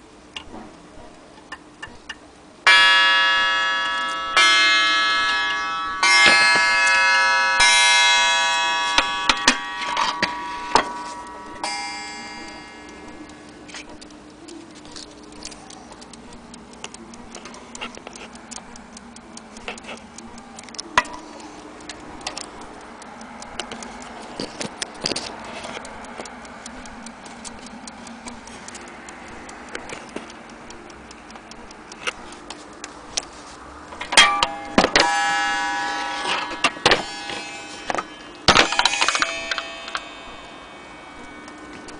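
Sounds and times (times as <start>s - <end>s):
clock ticking: 0.0s - 41.9s
clock bell striking: 2.6s - 13.8s, 34.0s - 41.9s.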